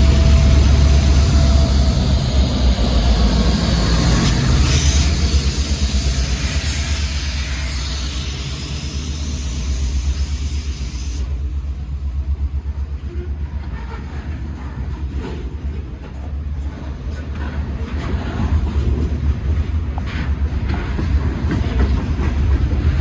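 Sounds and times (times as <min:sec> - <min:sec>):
diesel locomotive engine rumble: 0:00.0 - 0:23.0
high hiss: 0:00.6 - 0:11.4.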